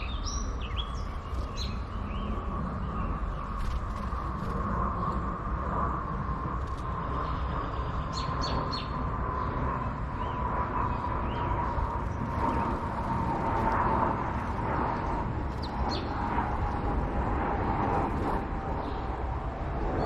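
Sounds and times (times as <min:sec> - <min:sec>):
small songbirds chirping: 0:00.0 - 0:05.2, 0:06.8 - 0:16.8
faint hum: 0:00.0 - 0:20.0
low background rumble: 0:00.0 - 0:20.0.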